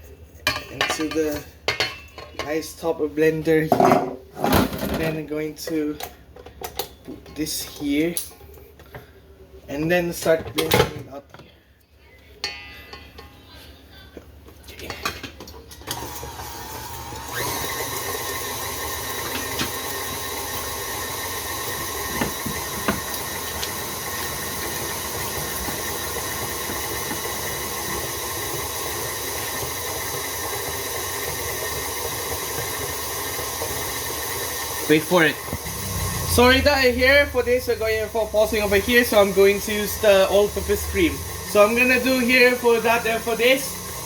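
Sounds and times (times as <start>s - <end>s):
blender motor running: 15.8s - 44.0s.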